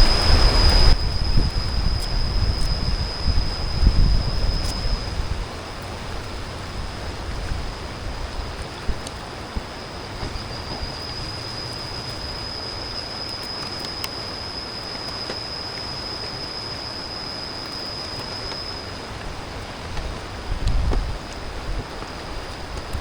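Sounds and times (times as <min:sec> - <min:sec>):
river rushing: 0:00.0 - 0:03.7
insect buzzing: 0:00.0 - 0:05.4.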